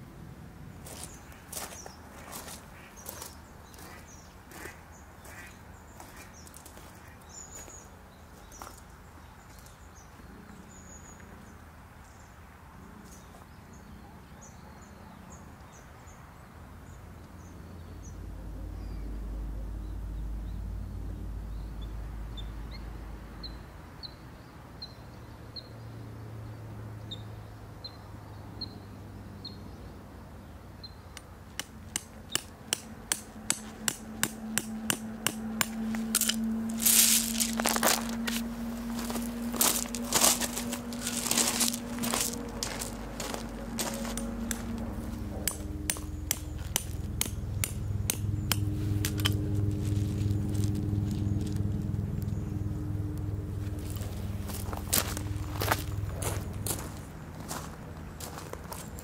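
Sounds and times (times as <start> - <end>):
birds chirping: 0.7 - 16.2, 32.2 - 59.0
hammer striking tent peg: 31.6 - 36.4
low rumble: 35.0 - 58.2.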